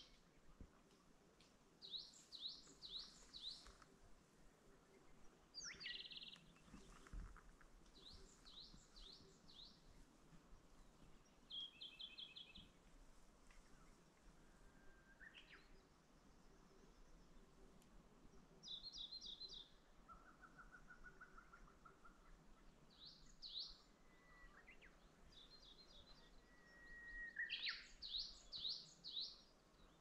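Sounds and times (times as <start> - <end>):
songbirds whistling: 25.6 - 29.4.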